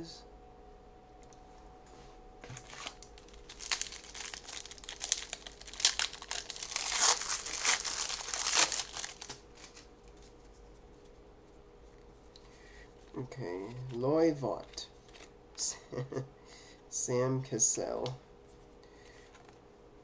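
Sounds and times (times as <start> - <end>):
card pack wrapper tearing: 2.5 - 9.9.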